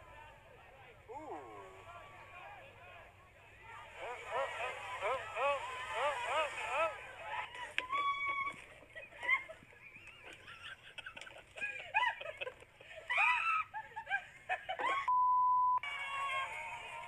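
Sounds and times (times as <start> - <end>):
excited voices calling out: 1.0 - 9.6
censor bleep: 15.1 - 15.8.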